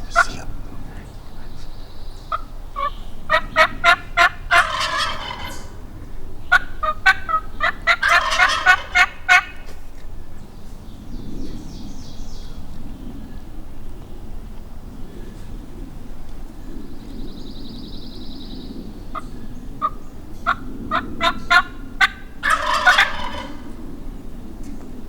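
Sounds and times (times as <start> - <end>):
wild turkey gobbling: 2.2 - 9.8, 19.1 - 23.8.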